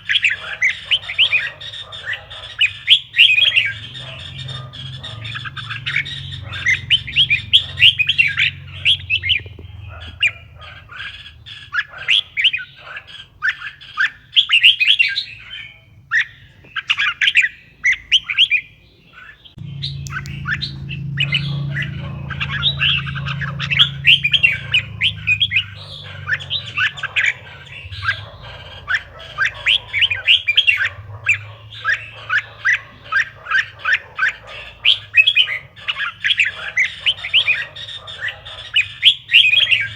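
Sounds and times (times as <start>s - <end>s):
bulbul chattering chirps: 0.0s - 39.9s
steady low hum: 19.6s - 32.8s.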